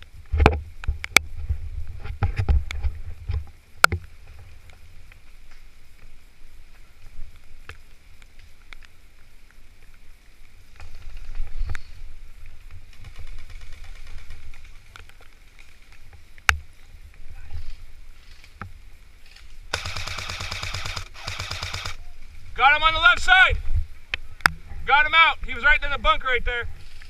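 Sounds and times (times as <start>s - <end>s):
airsoft gun shots: 19.7s - 22.0s
full-auto airsoft burst: 19.7s - 22.0s.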